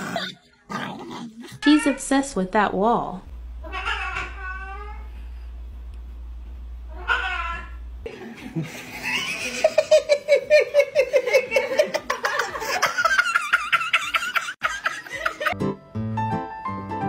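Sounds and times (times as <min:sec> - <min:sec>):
cat meow: 0:03.6 - 0:05.1, 0:06.9 - 0:07.8
person giggling: 0:08.1 - 0:15.6.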